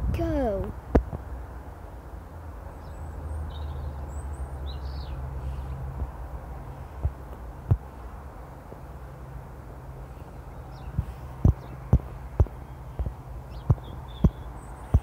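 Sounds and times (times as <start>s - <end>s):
bird chirps: 10.1s - 15.0s.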